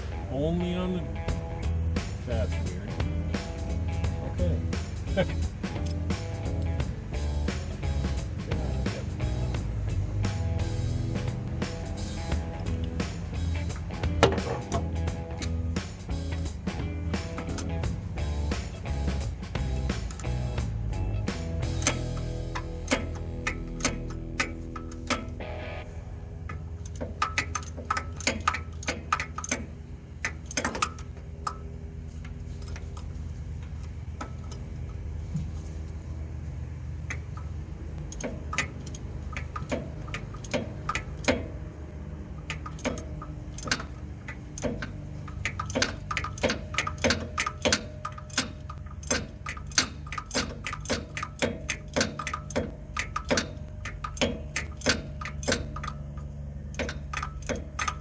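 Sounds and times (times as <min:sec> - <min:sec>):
steady low hum: 0:00.0 - 0:58.0
ratchet wrench clicking: 0:21.7 - 0:25.4, 0:26.8 - 0:31.6, 0:37.1 - 0:41.6, 0:42.3 - 0:58.0.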